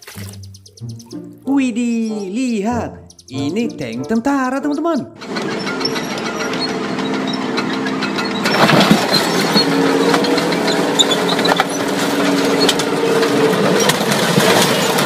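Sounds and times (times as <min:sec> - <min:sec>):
tank engine running under load: 0:05.2 - 0:15.0
car body crunching: 0:06.5 - 0:15.0.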